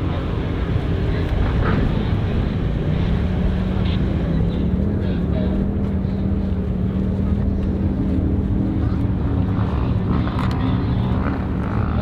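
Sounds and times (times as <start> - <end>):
off-road engine running hard: 0.0 - 12.0.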